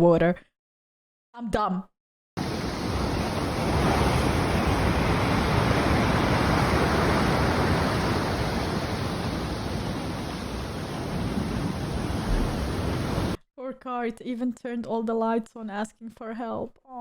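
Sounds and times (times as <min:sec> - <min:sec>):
storm wind on microphone: 0:02.4 - 0:13.4.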